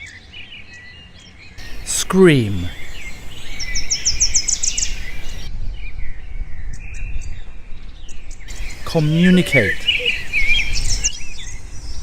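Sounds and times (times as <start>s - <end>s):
low background noise: 0.3s - 5.5s, 8.5s - 11.8s
birds chirping: 1.5s - 5.5s, 8.4s - 11.6s.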